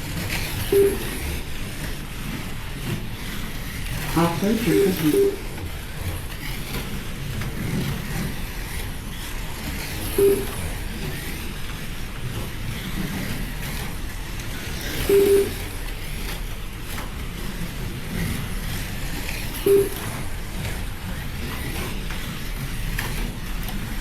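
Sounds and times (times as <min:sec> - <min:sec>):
slot car motors whirring: 0:00.0 - 0:24.0
short electronic beeps: 0:00.6 - 0:01.2, 0:04.2 - 0:05.5, 0:10.2 - 0:10.6, 0:15.0 - 0:15.7, 0:19.6 - 0:20.1.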